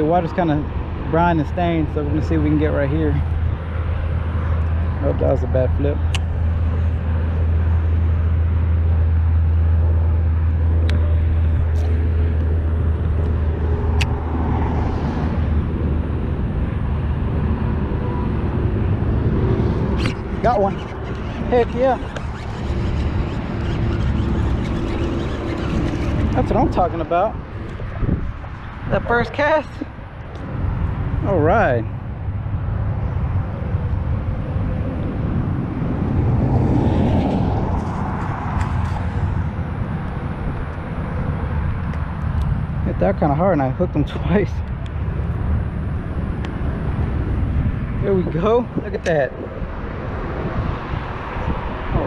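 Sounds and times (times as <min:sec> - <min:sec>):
highway traffic noise: 0:00.0 - 0:52.0
wind rumble on microphone: 0:00.0 - 0:52.0
sharp click: 0:14.0 - 0:14.2.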